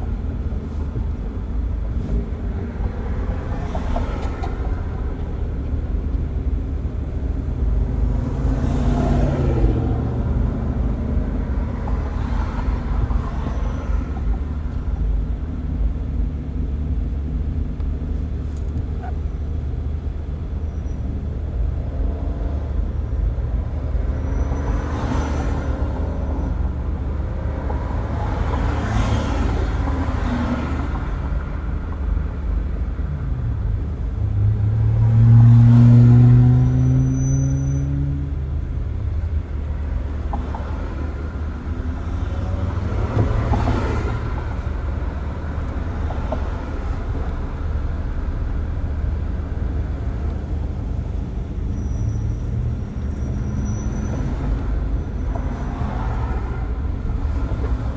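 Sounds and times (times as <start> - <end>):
road and tyre rumble: 0.0 - 57.9
vehicles swishing past: 22.0 - 57.9.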